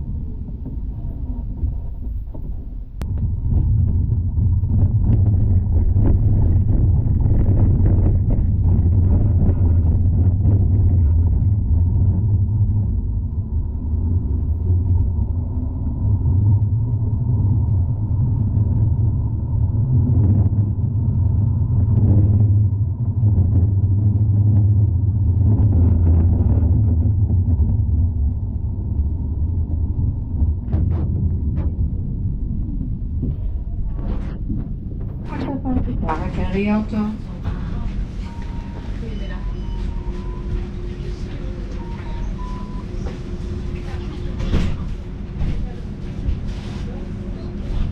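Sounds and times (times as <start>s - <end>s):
tram rumbling on rails: 0.0s - 47.9s.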